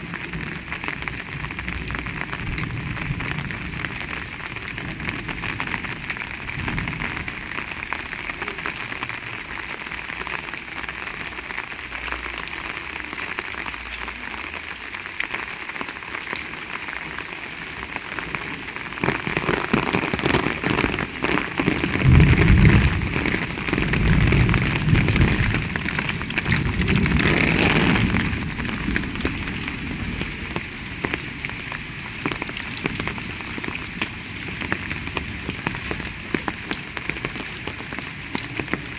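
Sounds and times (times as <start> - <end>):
heavy rain hissing: 17.6 - 38.9.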